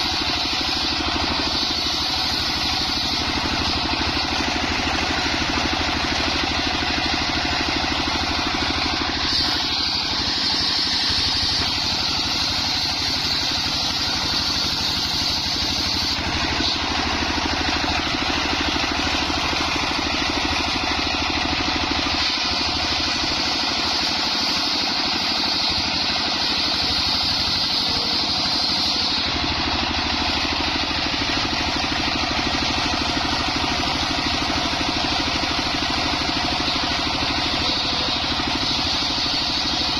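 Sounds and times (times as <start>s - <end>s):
circular saw engine running: 0.0s - 39.9s
saw blade whining: 0.0s - 39.9s.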